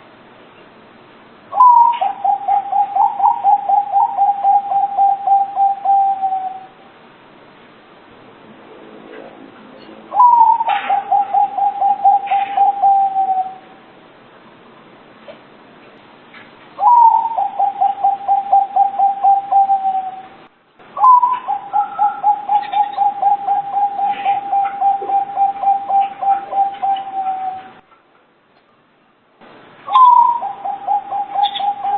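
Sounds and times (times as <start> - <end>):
dove cooing: 1.5 - 6.8, 10.1 - 13.8, 16.8 - 20.4, 21.0 - 27.8, 29.9 - 31.9.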